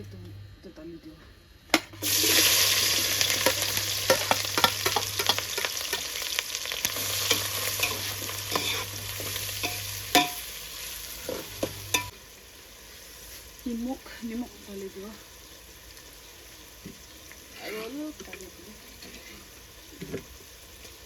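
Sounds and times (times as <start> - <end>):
food sizzling in hot oil: 1.8 - 21.0
utensil scraping a pan: 2.0 - 10.4
utensil clanking on pan: 3.2 - 6.2, 6.8 - 10.5, 11.2 - 12.1.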